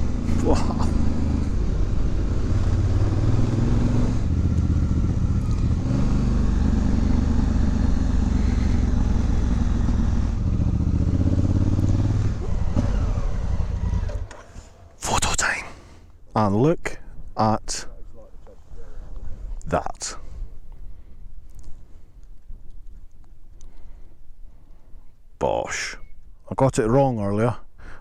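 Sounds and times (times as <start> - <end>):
motorcycle engine shifting gears: 0.0 - 15.0.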